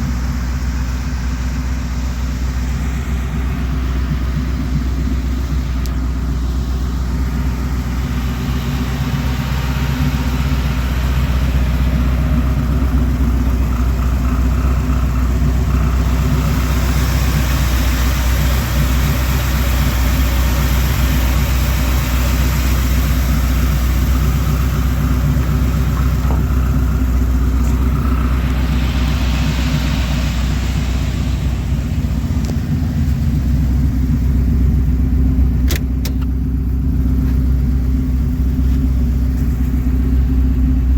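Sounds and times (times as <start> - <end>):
truck engine running: 0.0 - 40.9
hiss: 25.4 - 33.2.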